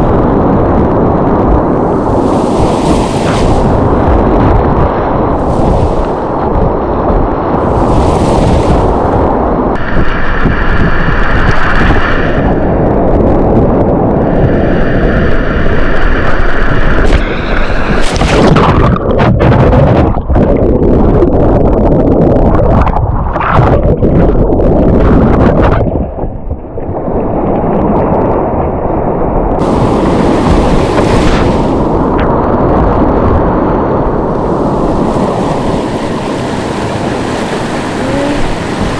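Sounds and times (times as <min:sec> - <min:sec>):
wind buffeting microphone: 0:00.0 - 0:38.9
rapids rushing and splashing: 0:01.7 - 0:12.6, 0:29.5 - 0:32.5, 0:34.1 - 0:38.9.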